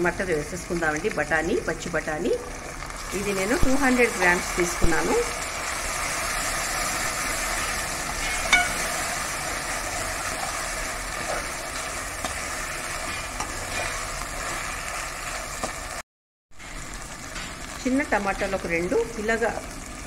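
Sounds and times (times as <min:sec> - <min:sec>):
peas sizzling in hot oil: 0:00.0 - 0:16.0, 0:16.6 - 0:20.0
spatula stirring: 0:02.9 - 0:16.0.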